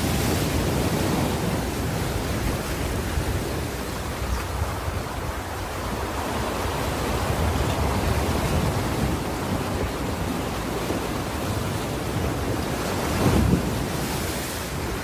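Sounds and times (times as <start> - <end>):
waves breaking: 0.0 - 15.0.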